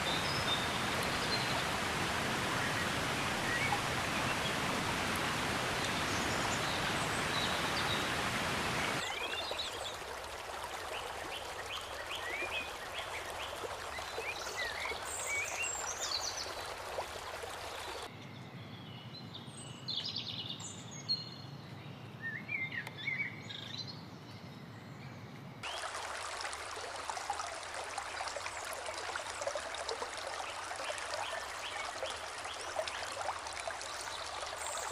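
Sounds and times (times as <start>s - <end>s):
creek water flowing: 0.0s - 18.1s, 25.6s - 34.9s
songbirds chirping: 0.0s - 34.9s.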